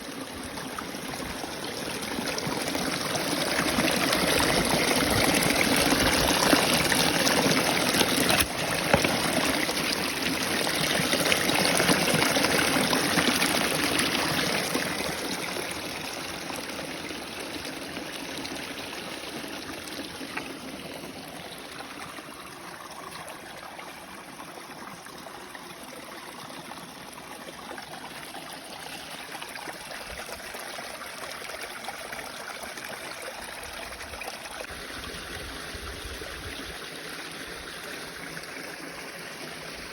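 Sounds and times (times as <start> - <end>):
waterfall splashing over rocks: 3.4 - 15.2.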